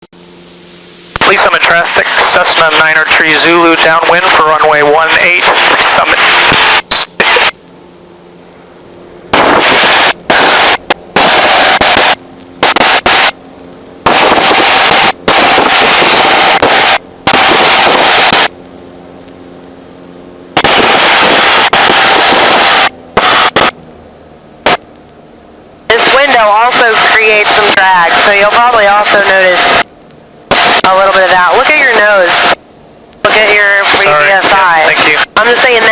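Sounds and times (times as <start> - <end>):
aircraft engine drone: 0.1 - 35.9
loud bursts of hiss: 9.3 - 13.3, 14.1 - 18.5.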